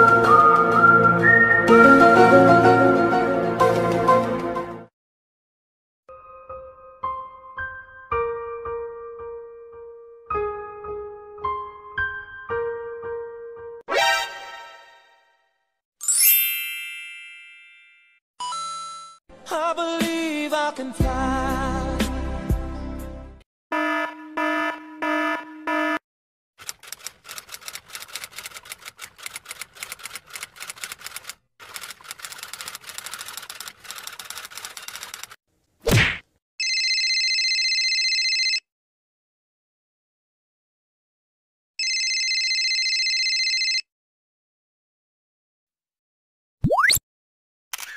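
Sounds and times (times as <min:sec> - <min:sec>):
typewriter keys clacking: 0:26.6 - 0:35.4.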